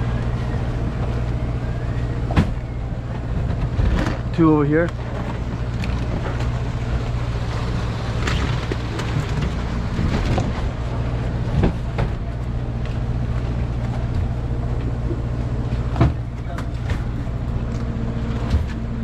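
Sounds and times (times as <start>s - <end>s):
boat engine humming: 0.0s - 19.0s
crab traps clunking on deck: 15.9s - 17.6s.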